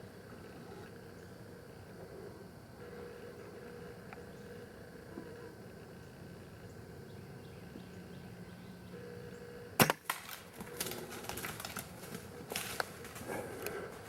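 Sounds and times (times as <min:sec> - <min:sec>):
crackling and rustling: 0:09.9 - 0:14.0.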